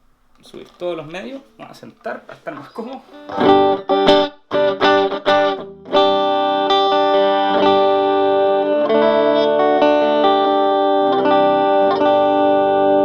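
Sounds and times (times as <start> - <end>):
electric guitar chords: 3.1 - 13.0.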